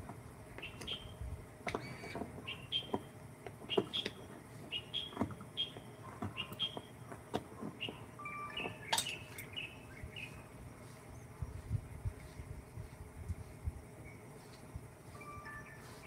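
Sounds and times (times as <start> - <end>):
small bird chirping: 0.6 - 3.1, 3.7 - 6.9, 7.8 - 13.0.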